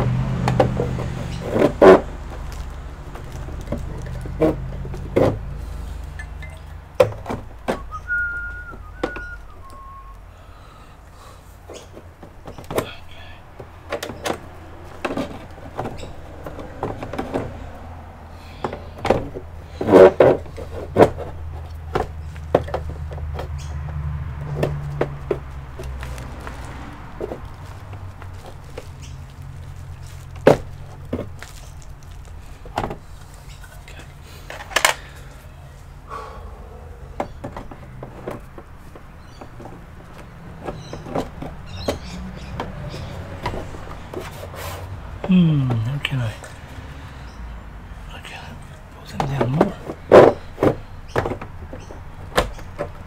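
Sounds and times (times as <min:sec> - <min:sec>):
person whistling: 0:07.8 - 0:10.2.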